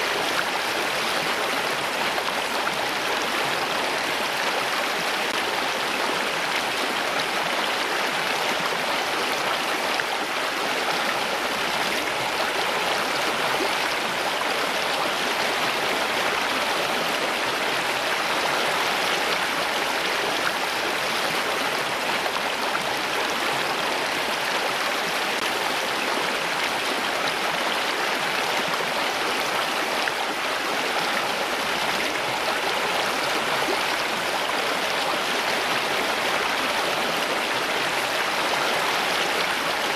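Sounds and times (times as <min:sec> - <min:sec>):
water flowing steadily: 0:00.0 - 0:39.9.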